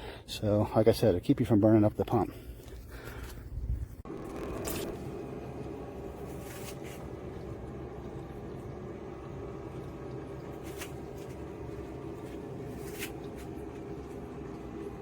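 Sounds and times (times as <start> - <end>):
submersible pump motor hum: 3.9 - 15.0.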